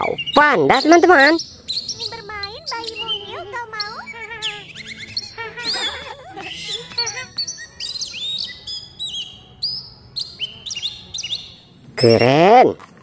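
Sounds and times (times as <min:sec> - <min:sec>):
high wavering voice-like sound: 0:00.0 - 0:07.4
small birds chirping: 0:00.0 - 0:12.7.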